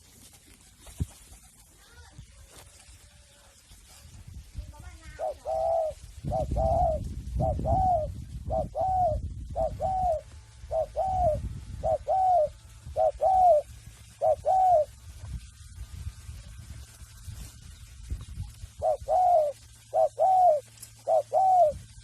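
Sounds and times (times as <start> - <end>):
dove cooing: 5.0 - 15.0, 18.5 - 22.0.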